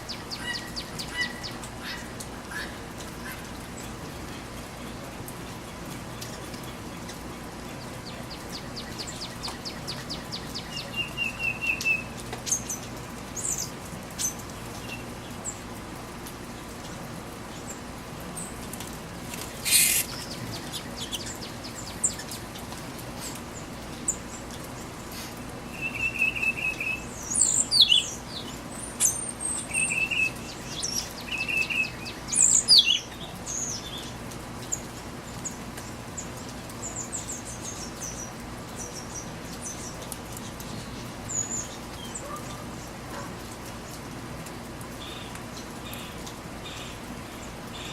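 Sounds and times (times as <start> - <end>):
birds chirping and trilling: 0.0 - 4.5, 5.6 - 15.6, 19.5 - 43.0
rain hissing: 0.0 - 47.9.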